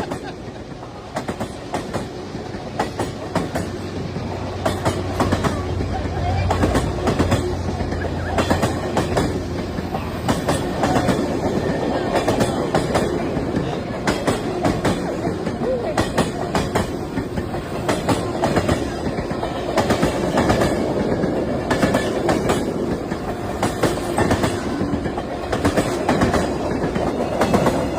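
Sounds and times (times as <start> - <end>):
train rumble: 0.0 - 27.9
train wheels clattering over rail joints: 0.0 - 27.9.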